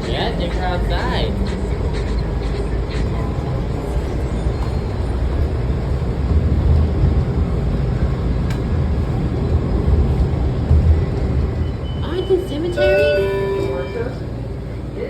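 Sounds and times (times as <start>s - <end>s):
train wheels and motors rumbling: 0.0s - 15.0s.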